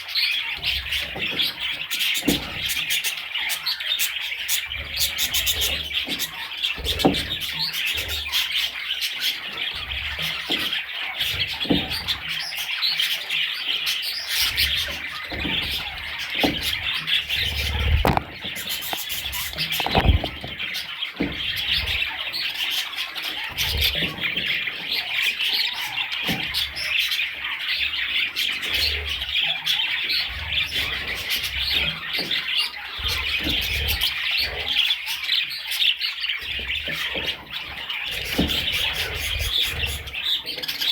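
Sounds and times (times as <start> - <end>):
budgerigars chirping and chattering: 0.0 - 40.9
soft knocks: 17.9 - 21.5.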